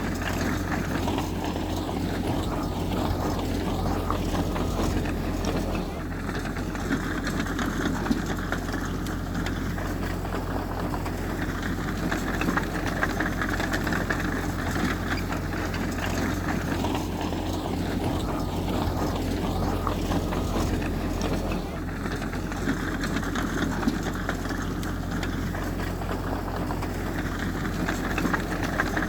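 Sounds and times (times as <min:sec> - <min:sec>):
heavy diesel engine droning: 0:00.0 - 0:29.0.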